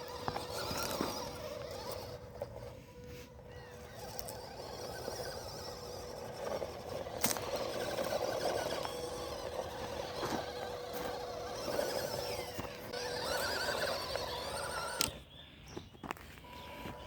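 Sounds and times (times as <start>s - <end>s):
small electric motor whining: 0.0s - 15.3s
ground crunching under tyres: 0.0s - 17.0s.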